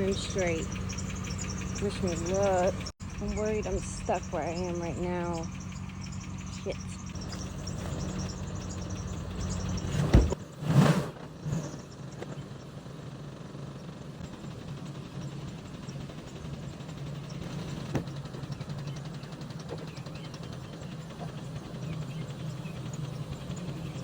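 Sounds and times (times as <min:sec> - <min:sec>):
truck engine at low revs: 0:00.0 - 0:24.0.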